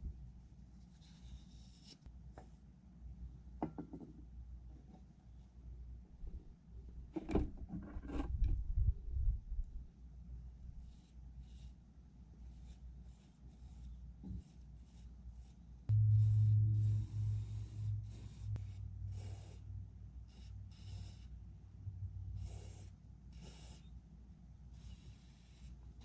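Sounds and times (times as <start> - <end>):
hand rubbing strokes: 12.5 - 21.4
loud low hum: 15.9 - 20.2.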